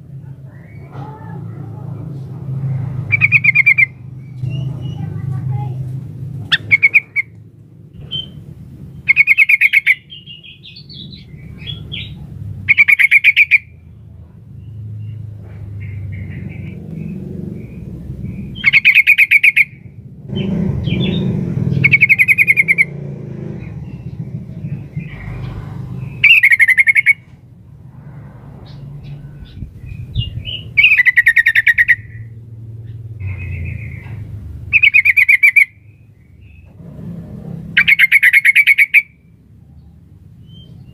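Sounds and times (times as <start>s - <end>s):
bird chattering calls: 3.0s - 5.8s, 6.4s - 7.4s, 8.0s - 13.8s, 15.6s - 27.3s, 28.6s - 36.7s, 37.7s - 39.2s
low rumbling background: 13.7s - 35.0s.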